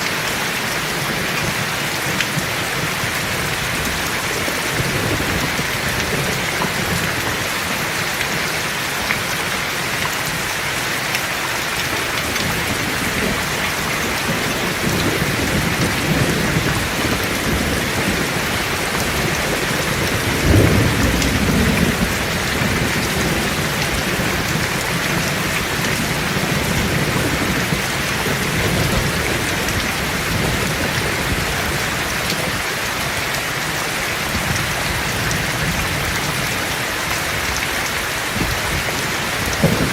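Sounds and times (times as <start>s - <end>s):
heavy rain falling: 0.0s - 39.9s
rolling thunder: 1.0s - 8.0s, 12.0s - 32.6s, 38.3s - 39.9s
loud thunder clap: 12.1s - 32.5s, 38.3s - 39.9s.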